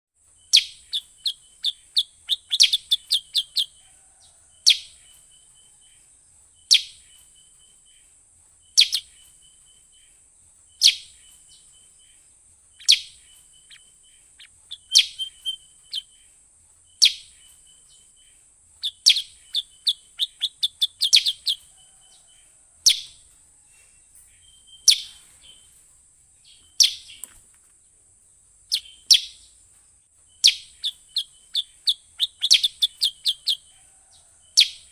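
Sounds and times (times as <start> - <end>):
rapid bird chirps: 0.2 - 27.4, 28.4 - 29.6, 30.2 - 34.9
bird rattling trill: 0.4 - 5.8, 6.6 - 23.5, 30.2 - 34.9.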